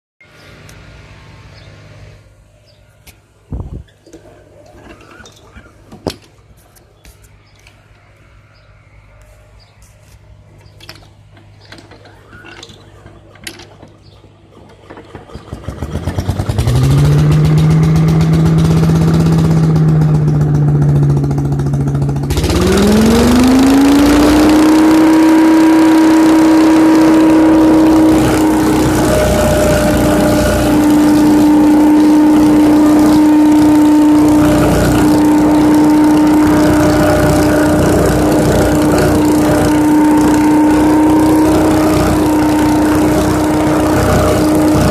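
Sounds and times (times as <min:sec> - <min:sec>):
leaf vacuum engine running: 0:14.0 - 0:44.9.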